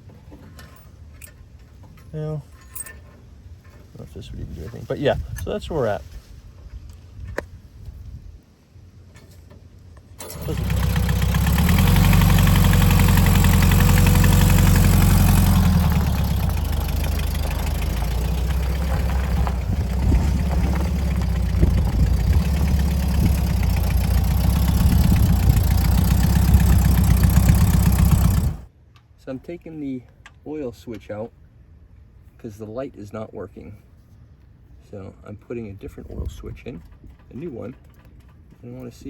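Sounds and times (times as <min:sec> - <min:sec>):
car engine starting and idling: 0:10.2 - 0:28.7.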